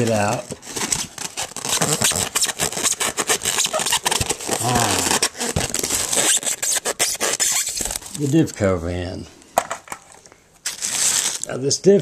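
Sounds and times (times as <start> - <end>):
cardboard and tissue paper rustling: 0.0 - 8.5, 10.6 - 11.6.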